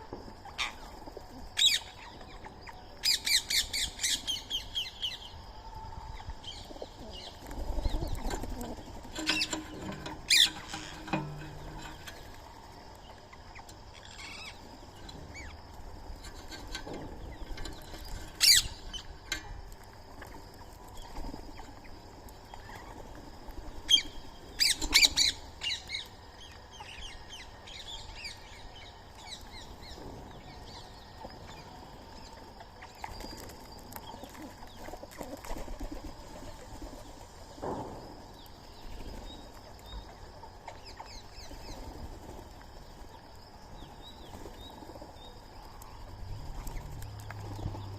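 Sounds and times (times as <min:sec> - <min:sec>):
birds chirping: 0:00.4 - 0:35.6, 0:36.4 - 0:47.9
harsh bird calls: 0:06.1 - 0:19.5.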